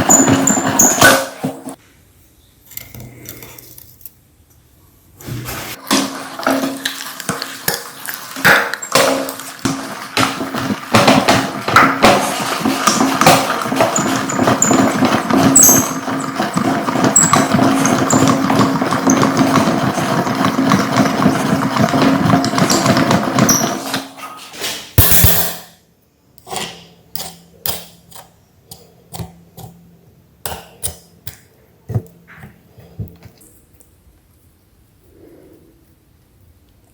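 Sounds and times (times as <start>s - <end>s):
candy crunching in grinder: 5.8s - 23.9s
meat grinder motor hum: 9.5s - 23.9s.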